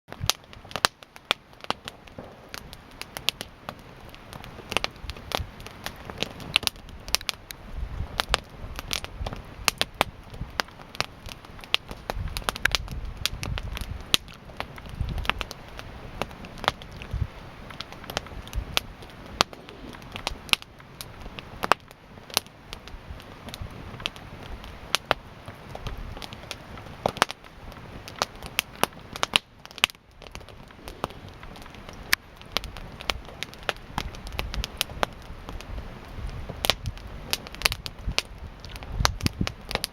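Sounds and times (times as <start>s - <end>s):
campfire pops and crackles: 0.1s - 39.9s
fire hissing: 0.2s - 39.9s
low rumble: 18.5s - 21.4s.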